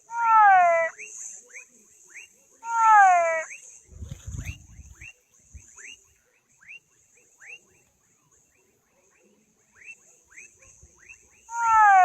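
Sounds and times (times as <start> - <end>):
frog chirping: 0.0 - 1.7, 2.6 - 3.7, 8.5 - 12.0.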